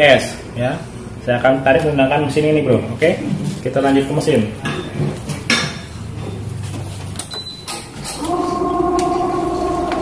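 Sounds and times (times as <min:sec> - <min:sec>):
tensioning motor humming: 0:08.2 - 0:10.0.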